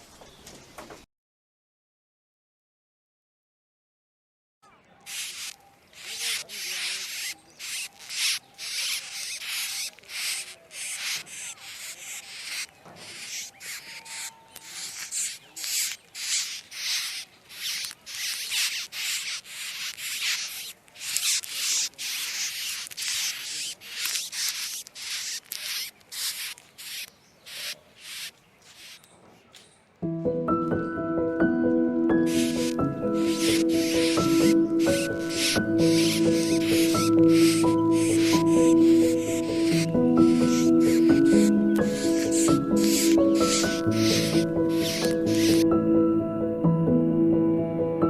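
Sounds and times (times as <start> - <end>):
rasping rubbing strokes: 5.0 - 29.1, 32.1 - 45.7
music: 30.0 - 48.0.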